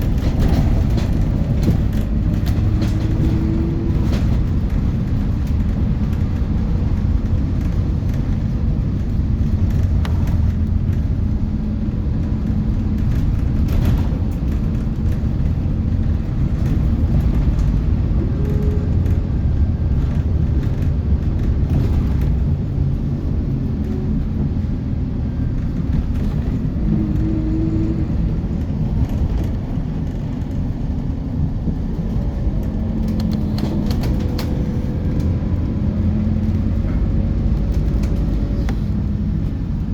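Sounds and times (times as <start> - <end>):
diesel bus engine rumble: 0.0 - 39.9
clicks and rattles: 31.7 - 35.3.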